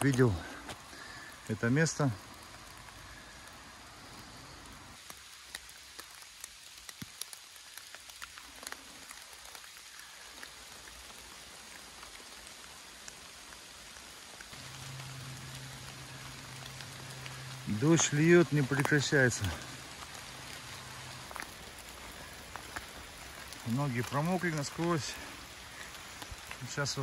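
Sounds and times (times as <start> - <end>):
rain falling in forest: 0.0 - 27.0
low steady hum: 14.6 - 22.4
drops ticking: 14.6 - 27.0.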